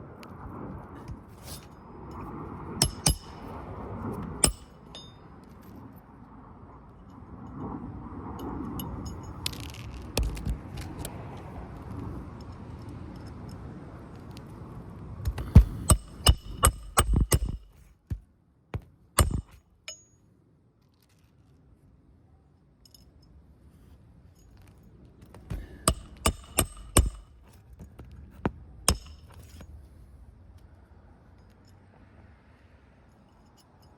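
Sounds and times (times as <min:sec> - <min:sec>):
hammer striking roofing nails: 0:02.8 - 0:03.4, 0:04.4 - 0:05.0, 0:15.3 - 0:18.2, 0:18.8 - 0:19.6, 0:25.4 - 0:27.4, 0:28.9 - 0:29.4.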